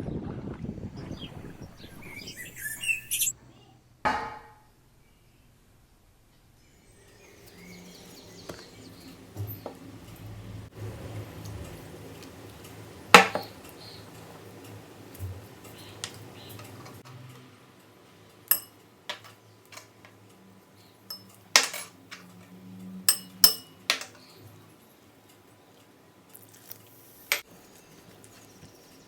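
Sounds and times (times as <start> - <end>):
utensils clinking against dishes: 18.5 - 19.9, 21.1 - 22.5, 23.1 - 24.2.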